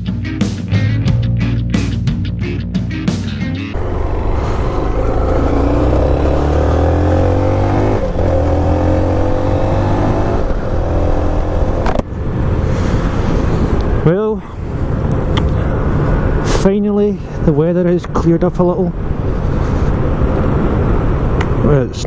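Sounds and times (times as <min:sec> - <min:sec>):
motorcycle engine accelerating: 0:03.7 - 0:13.8.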